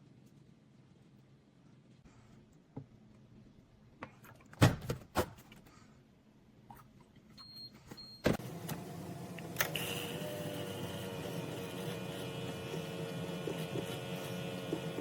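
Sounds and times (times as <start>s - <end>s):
motor humming and whining: 8.4s - 15.0s.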